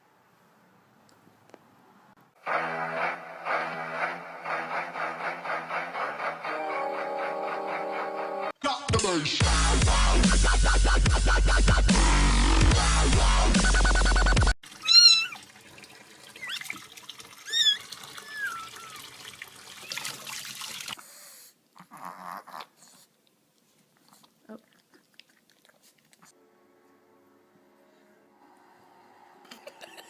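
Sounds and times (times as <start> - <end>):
cat meowing: 14.8 - 15.4, 17.5 - 19.0.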